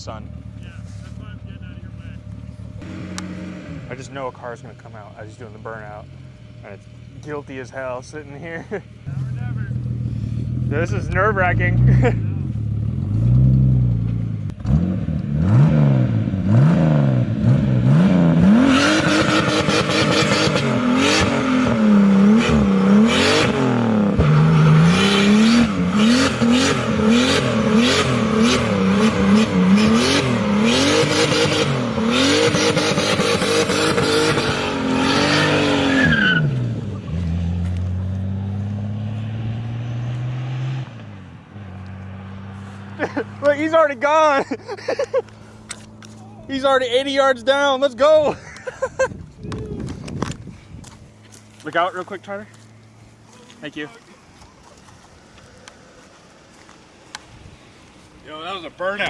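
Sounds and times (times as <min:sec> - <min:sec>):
car engine revving: 0:00.0 - 0:48.8
tyres spinning and squealing: 0:22.2 - 0:37.4.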